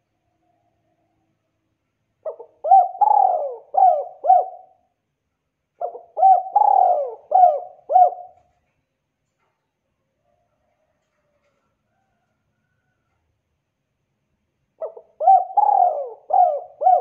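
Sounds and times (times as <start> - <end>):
dove cooing: 2.2 - 4.9, 5.8 - 8.5, 14.8 - 17.0.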